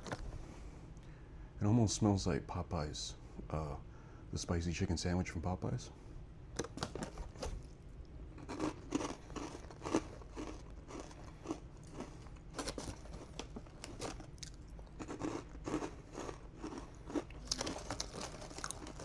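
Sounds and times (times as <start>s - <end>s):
person chewing crunchy snack: 8.4s - 19.0s.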